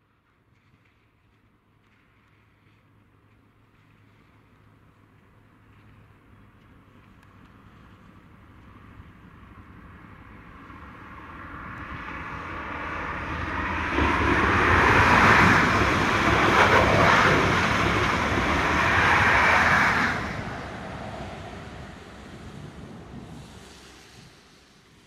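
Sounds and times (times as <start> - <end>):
wheels rushing on rail: 0.6 - 25.0
faint engine whine: 1.2 - 25.0
train passing at speed: 8.2 - 25.0.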